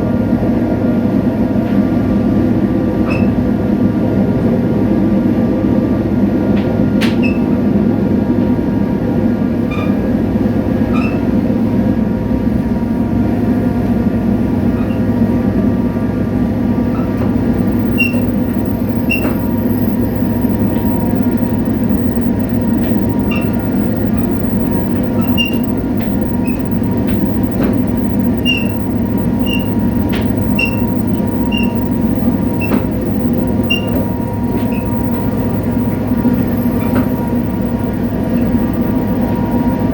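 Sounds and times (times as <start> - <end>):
diesel locomotive engine drone: 0.0 - 39.9
clicks: 17.2 - 39.9.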